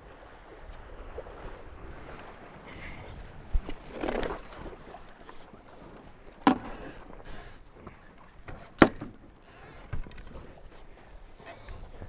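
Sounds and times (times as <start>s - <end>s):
water rushing past boat: 0.0s - 12.0s
sharp knocks on boat: 3.6s - 10.6s.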